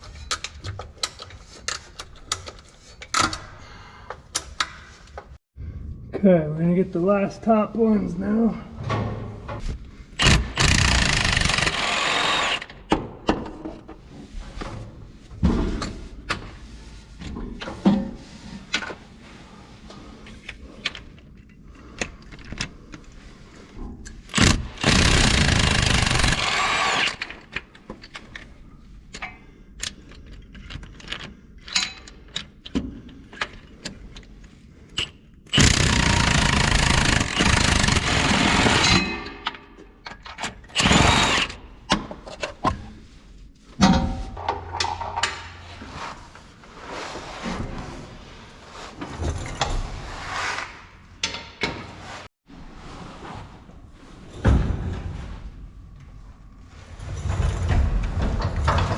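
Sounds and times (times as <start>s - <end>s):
power wrench running: 10.2s - 12.7s, 24.3s - 27.4s, 35.5s - 39.1s, 40.8s - 41.6s
tools clinking and knocking: 29.1s - 34.3s, 43.8s - 45.6s.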